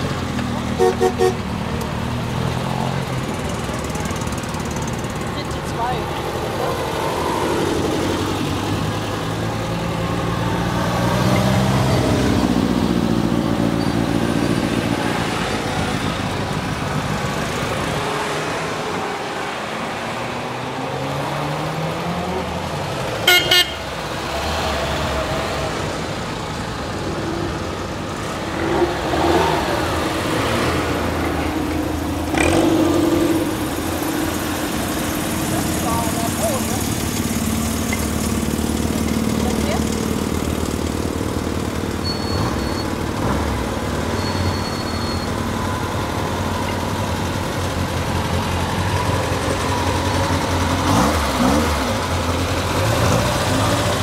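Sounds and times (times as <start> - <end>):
car engines revving past: 0.0 - 44.6, 45.3 - 54.0
car horn toot: 0.8 - 1.4, 23.2 - 23.9.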